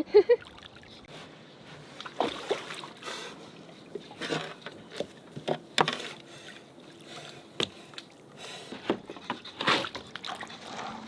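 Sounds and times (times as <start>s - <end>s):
steady wash of water: 2.0s - 8.4s.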